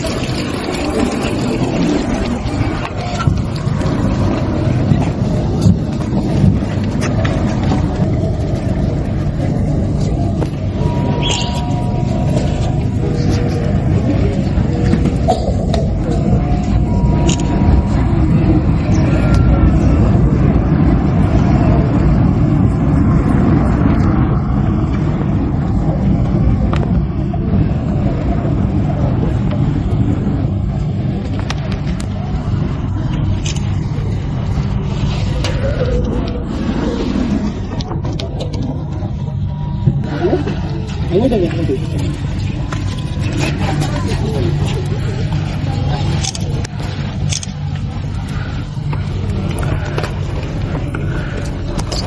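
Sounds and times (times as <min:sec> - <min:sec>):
steady low rumble: 0:00.0 - 0:52.0
faint high tone: 0:10.6 - 0:13.7.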